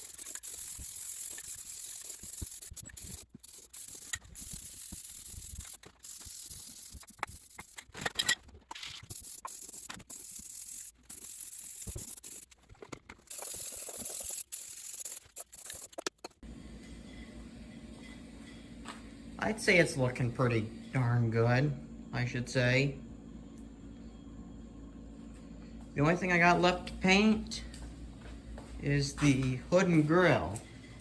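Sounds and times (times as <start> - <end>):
spray paint can hissing: 0.0 - 7.9, 8.8 - 12.6, 13.3 - 16.1.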